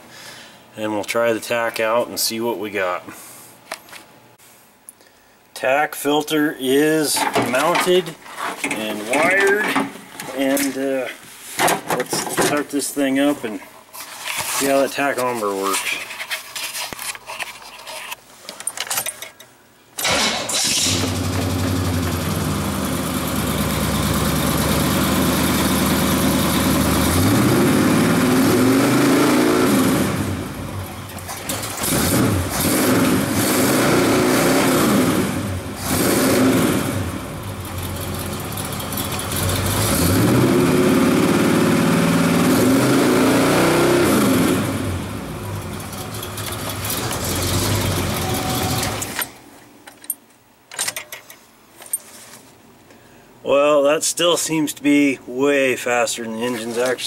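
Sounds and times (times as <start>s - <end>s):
car engine starting and revving: 20.0s - 49.2s.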